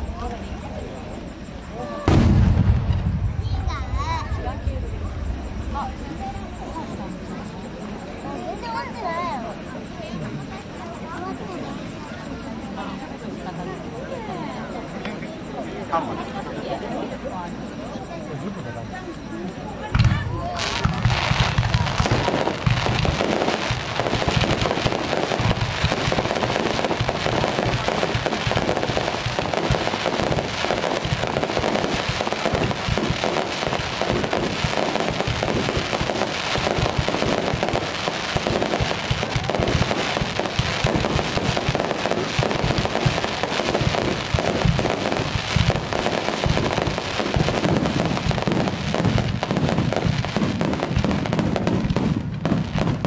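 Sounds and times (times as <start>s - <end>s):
fireworks bursting and crackling: 0.0s - 53.0s.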